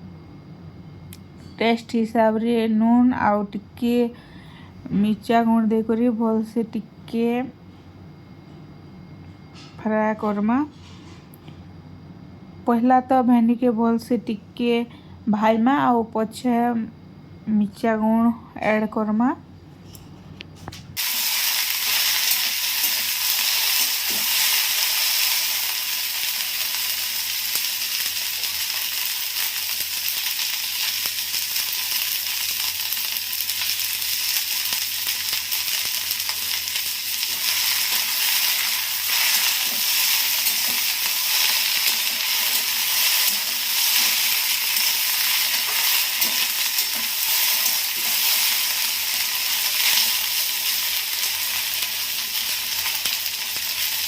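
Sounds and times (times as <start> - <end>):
okra sizzling in hot oil: 21.0 - 54.0.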